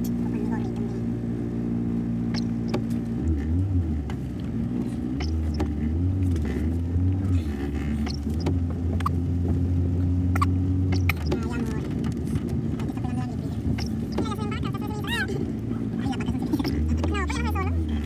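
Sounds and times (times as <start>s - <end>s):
car engine humming: 0.0s - 18.0s.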